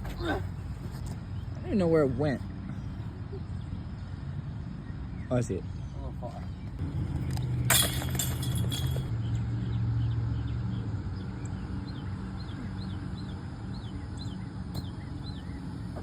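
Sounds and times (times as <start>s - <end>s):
bird chirping: 2.5s - 7.7s, 9.0s - 16.0s.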